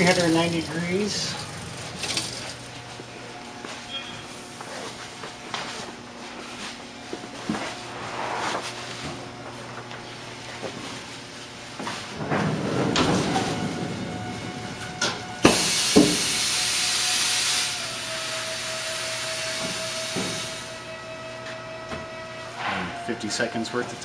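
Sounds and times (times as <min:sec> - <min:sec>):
loud hiss of air: 0:15.4 - 0:20.8.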